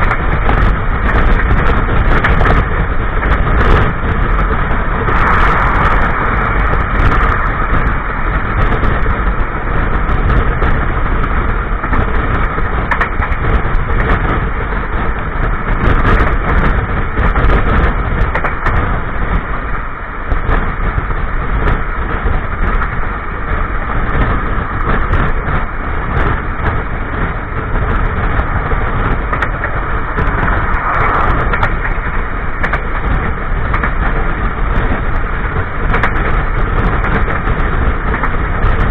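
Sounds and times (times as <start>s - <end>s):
train wheels rumbling on rails: 0.0s - 38.9s
sharp clicks and knocks: 11.8s - 14.3s, 15.9s - 18.8s, 27.8s - 35.0s, 35.8s - 38.9s.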